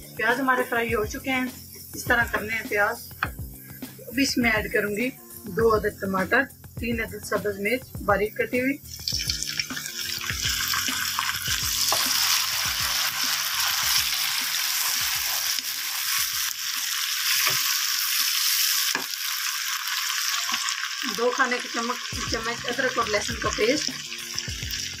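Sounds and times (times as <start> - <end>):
wooden spoon knocking on pan: 2.1 - 2.6
vegetables sizzling in hot oil: 8.8 - 25.0.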